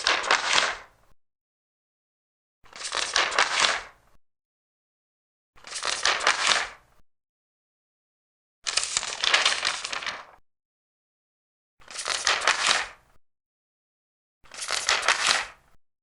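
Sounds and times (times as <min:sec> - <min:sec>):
paper pages turning: 0:00.0 - 0:00.9, 0:02.8 - 0:03.9, 0:05.6 - 0:06.8, 0:08.7 - 0:10.4, 0:11.8 - 0:13.0, 0:14.5 - 0:15.6.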